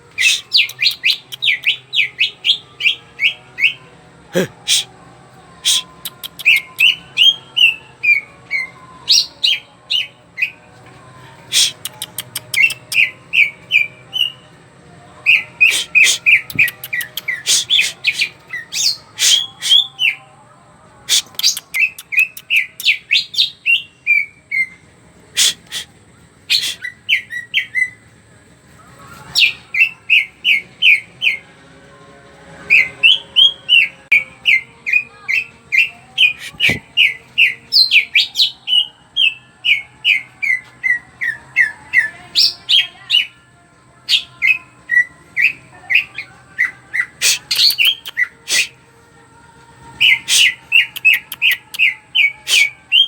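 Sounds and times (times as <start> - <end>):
bird singing rapid chirps: 0.2 - 3.8, 15.3 - 20.2, 21.1 - 24.7, 32.7 - 43.4, 44.1 - 48.8, 50.0 - 53.0
sharp clicks: 11.7 - 13.0.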